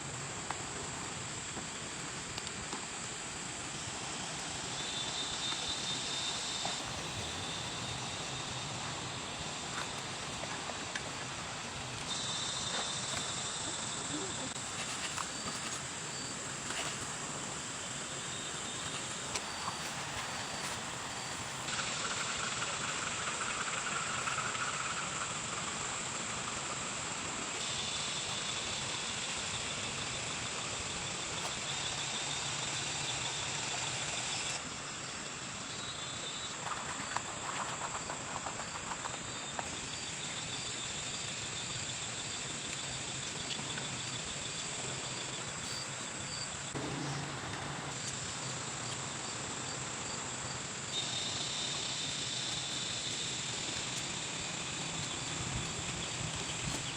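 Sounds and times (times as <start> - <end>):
high insect chirring: 3.6 - 26.1
stream water rushing: 14.6 - 21.7.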